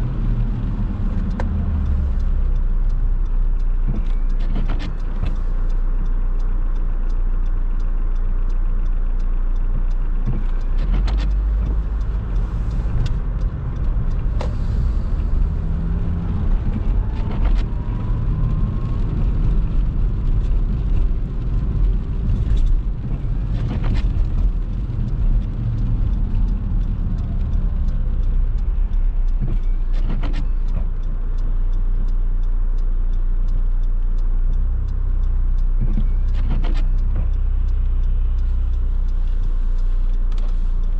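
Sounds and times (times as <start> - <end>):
tyre noise on wet road: 0.0 - 5.9, 10.2 - 32.4
car engine and road rumble: 0.0 - 40.9.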